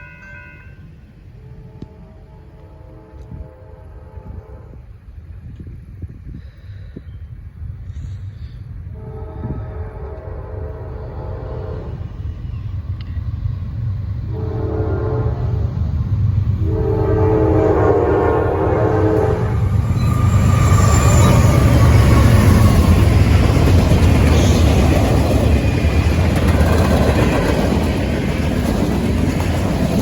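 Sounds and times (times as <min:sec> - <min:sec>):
locomotive air horn: 0:00.0 - 0:05.0, 0:08.9 - 0:12.1, 0:14.3 - 0:15.7, 0:16.6 - 0:21.7
locomotive rumble and wheel noise: 0:00.0 - 0:30.0.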